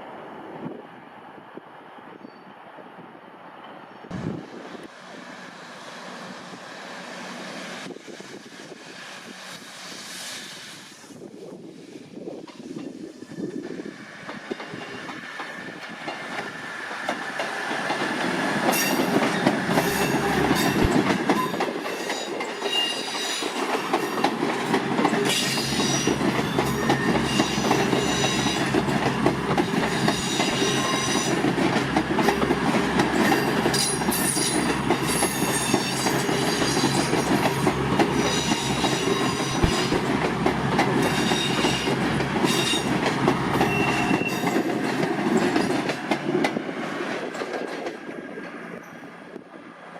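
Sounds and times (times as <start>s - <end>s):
train wheels squealing: 2.0s - 2.7s, 12.5s - 17.4s, 18.7s - 24.4s, 25.0s - 31.4s, 33.2s - 40.1s, 41.0s - 45.9s, 48.6s - 49.3s
train wheels clattering on rails: 12.2s - 49.5s.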